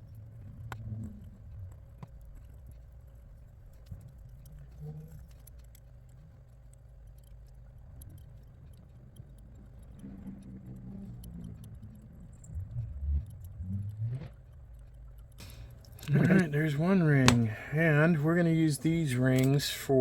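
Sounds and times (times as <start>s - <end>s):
small plastic and metal clicks: 2.0s - 12.6s.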